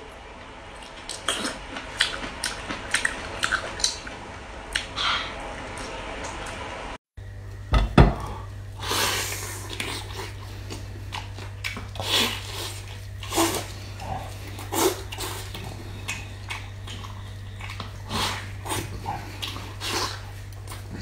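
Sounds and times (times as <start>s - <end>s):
steady low hum: 0.0s - 21.0s
man chewing and smacking: 0.7s - 4.9s, 9.4s - 21.0s.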